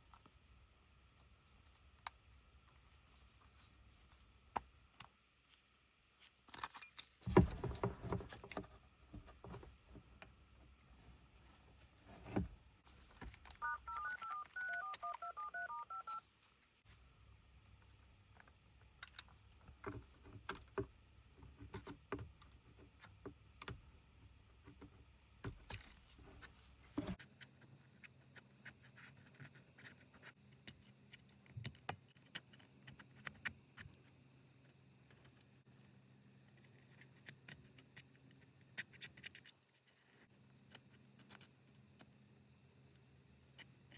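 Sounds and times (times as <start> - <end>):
touch-tone dialing beeps: 13.6 - 16.2.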